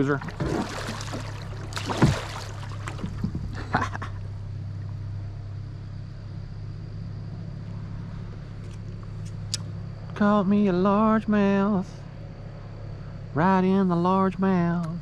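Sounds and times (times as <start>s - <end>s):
kayak knocks and rattles: 0.0s - 4.0s
steady low hum: 0.0s - 15.0s.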